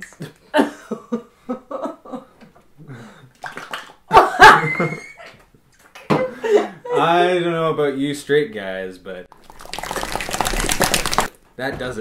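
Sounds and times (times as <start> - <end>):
noise putty squelching: 9.3 - 11.4.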